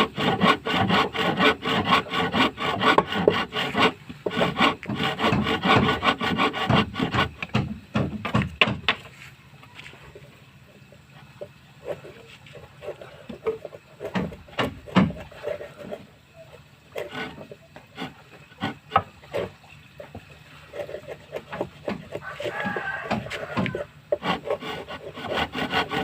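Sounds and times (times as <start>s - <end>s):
hand tool rubbing wood: 0.0s - 26.0s
knocks: 6.6s - 9.0s, 14.1s - 15.3s.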